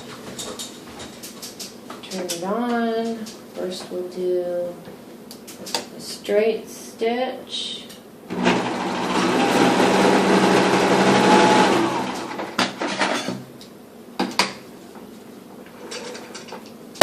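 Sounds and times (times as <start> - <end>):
sewing machine stitching: 8.3 - 12.5.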